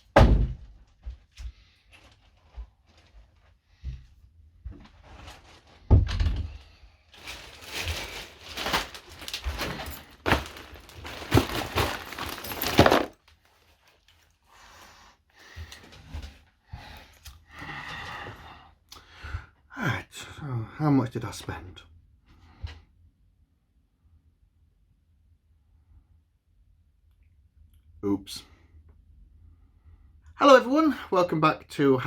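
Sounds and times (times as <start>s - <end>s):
thump: 0.2s - 0.7s
crinkling and rustling: 0.6s - 14.7s
handling noises: 7.1s - 14.3s.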